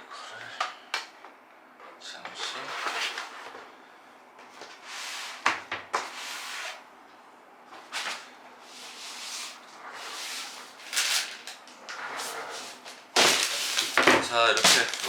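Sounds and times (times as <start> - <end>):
packaging rustling: 10.4 - 15.0.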